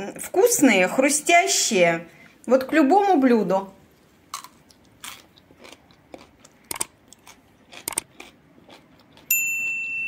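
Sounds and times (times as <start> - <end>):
crunchy chewing: 4.0 - 9.3.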